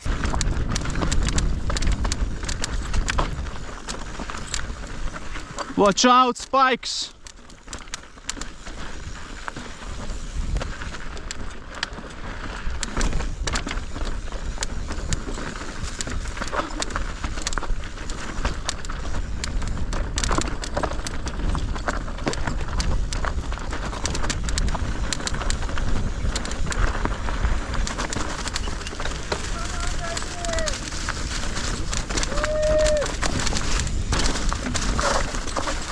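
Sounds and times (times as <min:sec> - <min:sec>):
wind rumble on microphone: 0:00.0 - 0:04.5, 0:08.6 - 0:16.4, 0:21.3 - 0:35.6
bike rattling and clattering: 0:00.0 - 0:06.2, 0:07.2 - 0:35.9.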